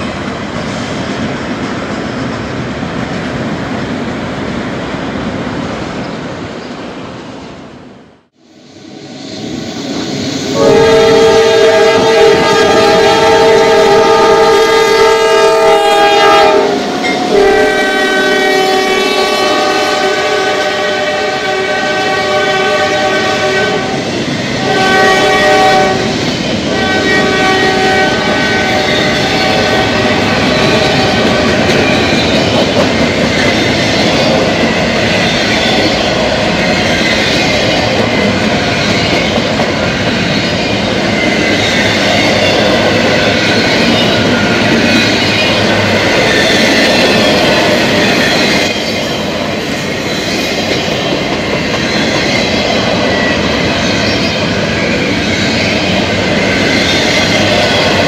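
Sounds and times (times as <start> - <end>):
freight cars rumbling on rails: 8.9 - 58.0
locomotive air horn blasts: 10.6 - 24.0, 24.6 - 26.1, 26.7 - 31.7.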